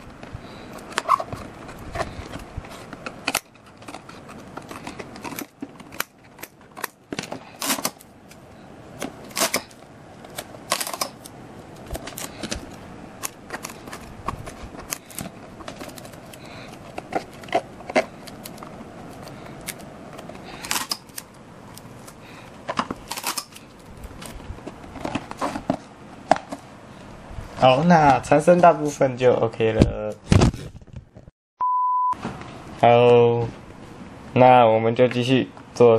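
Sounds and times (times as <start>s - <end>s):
paper and cardboard clicks and rustles: 0.0s - 26.7s.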